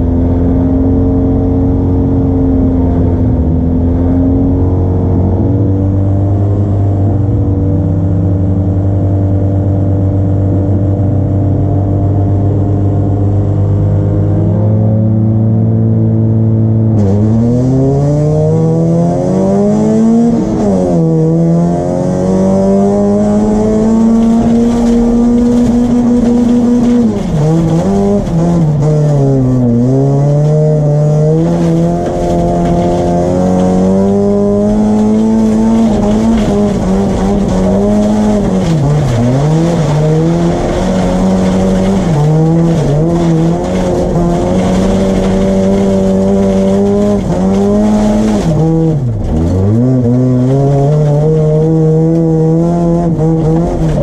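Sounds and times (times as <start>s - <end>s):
race car engine revving: 11.5s - 54.0s.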